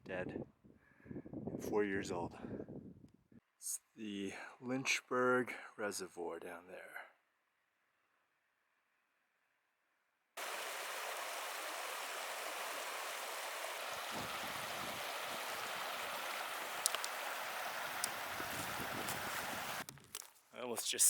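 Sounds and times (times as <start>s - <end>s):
creek water rushing: 10.4s - 19.8s
faint clicks: 14.1s - 20.3s.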